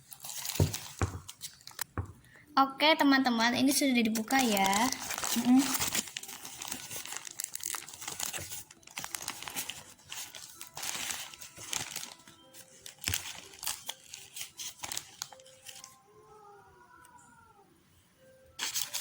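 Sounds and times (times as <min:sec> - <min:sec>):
paper wrapping crinkling: 0:00.0 - 0:02.0, 0:04.0 - 0:16.0, 0:18.6 - 0:19.0.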